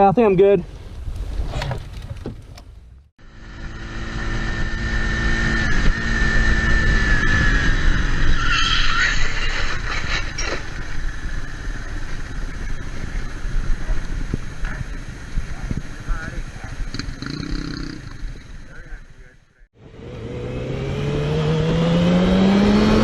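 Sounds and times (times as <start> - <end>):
motorcycle engine with whine: 1.7 - 19.0, 19.8 - 23.0
wind rumble: 3.9 - 23.0
brief squeal: 7.1 - 10.8.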